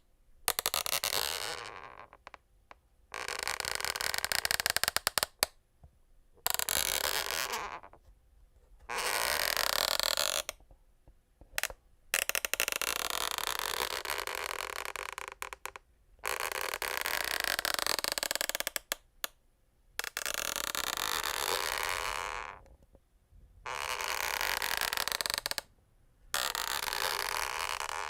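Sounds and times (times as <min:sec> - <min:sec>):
wooden floor creaking: 0:23.7 - 0:25.7, 0:26.4 - 0:28.0.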